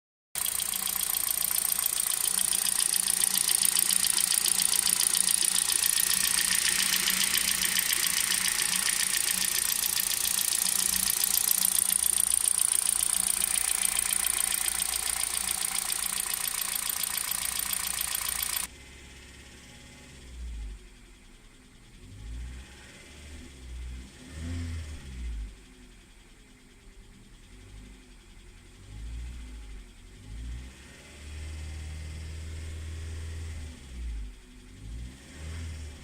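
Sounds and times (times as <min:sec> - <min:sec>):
car engine knocking clatter: 0:00.4 - 0:18.7.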